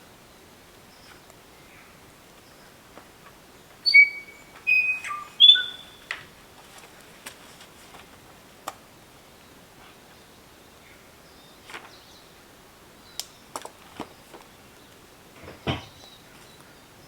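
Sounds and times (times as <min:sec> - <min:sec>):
bird whistling: 0:03.8 - 0:06.1.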